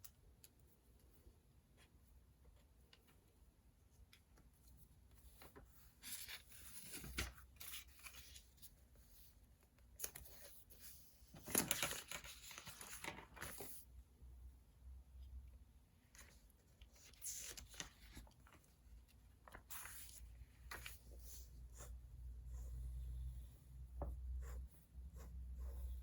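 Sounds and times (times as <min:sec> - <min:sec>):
paper rustling and crinkling: 0:05.2 - 0:13.9, 0:16.1 - 0:21.5.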